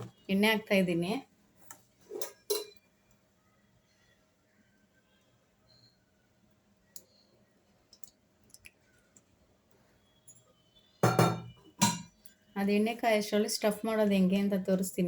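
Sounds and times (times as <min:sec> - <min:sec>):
kitchen utensils clicking: 0:02.1 - 0:02.8.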